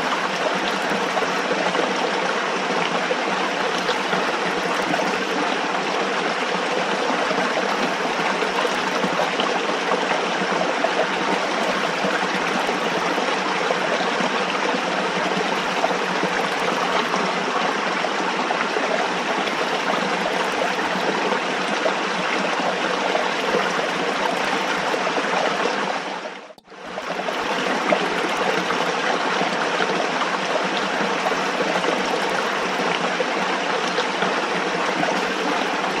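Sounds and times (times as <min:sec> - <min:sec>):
running water rushing: 0:00.0 - 0:36.0.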